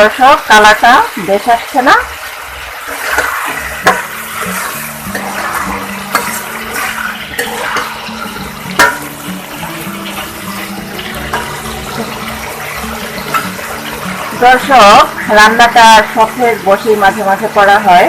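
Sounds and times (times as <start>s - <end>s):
vegetables sizzling in a pan: 0.0s - 18.0s
sharp knocks against pan: 3.2s - 4.5s, 8.8s - 9.2s.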